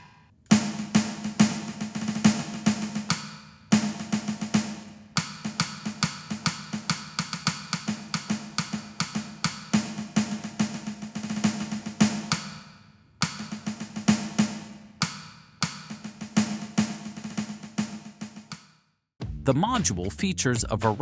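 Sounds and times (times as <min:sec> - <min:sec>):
electronic drum kit: 0:00.0 - 0:12.6, 0:19.2 - 0:21.0.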